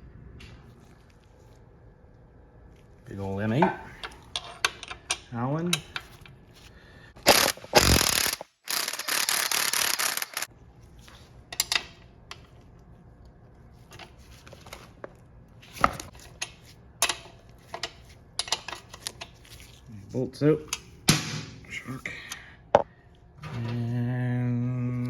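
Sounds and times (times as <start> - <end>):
ratchet wrench clicking: 7.3 - 10.5.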